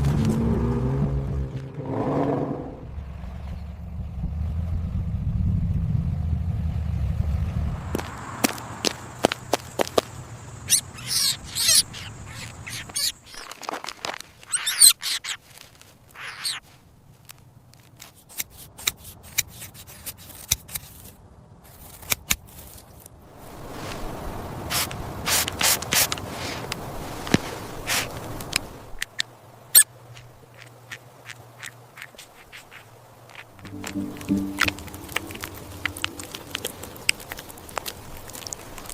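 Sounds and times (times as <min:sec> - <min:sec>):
rustling: 0:08.0 - 0:24.1, 0:24.7 - 0:29.0, 0:29.8 - 0:38.9
squirrels squeaking: 0:10.6 - 0:13.5, 0:14.4 - 0:15.5, 0:16.1 - 0:16.6.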